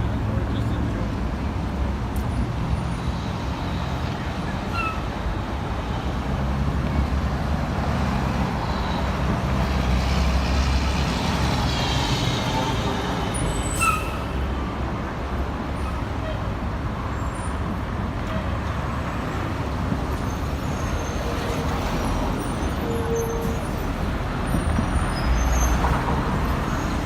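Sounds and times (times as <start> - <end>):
rumble of passing vehicles: 0.0 - 27.0
high squeal: 10.4 - 14.4.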